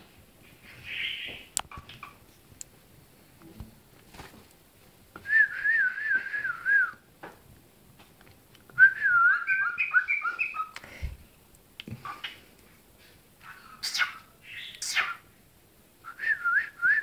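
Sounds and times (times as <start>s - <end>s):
cockatiel whistling: 8.8s - 10.8s.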